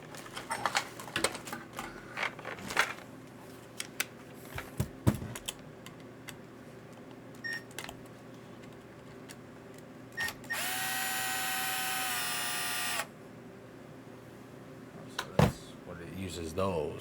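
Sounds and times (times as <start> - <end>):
small electric motor whine: 10.2 - 13.1.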